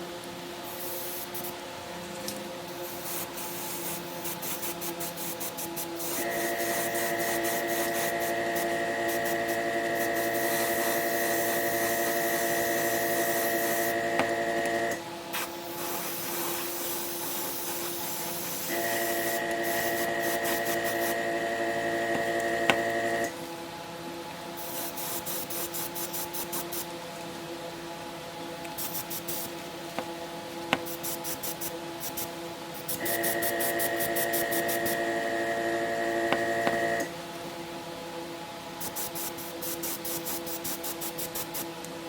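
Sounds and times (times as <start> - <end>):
small motor running: 6.0 - 15.0, 16.6 - 23.3, 33.0 - 37.1.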